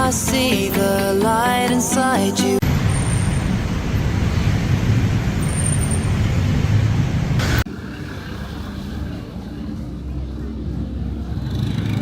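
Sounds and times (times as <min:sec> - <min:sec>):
road traffic rumble: 0:02.6 - 0:12.0.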